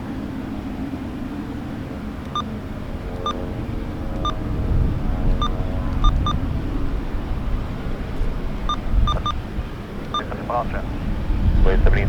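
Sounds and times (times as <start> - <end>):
airfield rumble: 0.0 - 12.0
faint steady tones: 0.0 - 12.0
short electronic beeps: 5.4 - 6.4, 8.7 - 9.4, 10.1 - 10.3.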